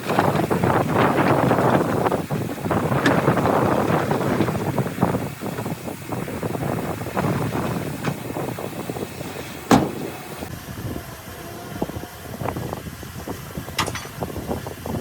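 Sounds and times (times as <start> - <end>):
machinery rattling: 0.0 - 10.5
heavy machinery rumbling: 0.0 - 10.8.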